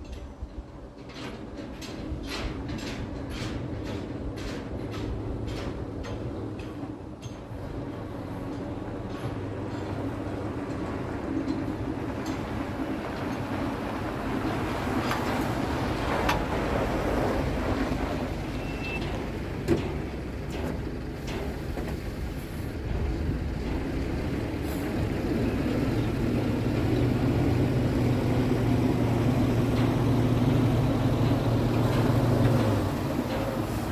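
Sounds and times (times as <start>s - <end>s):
diesel truck engine running: 7.5s - 33.9s.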